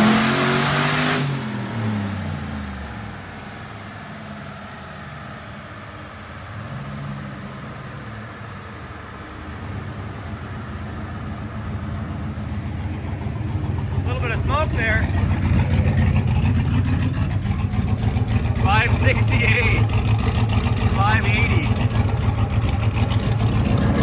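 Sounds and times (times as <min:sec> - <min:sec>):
pickup engine revving down: 0:00.0 - 0:24.0
engine idling: 0:01.5 - 0:24.0
loud rush of noise: 0:20.6 - 0:21.8.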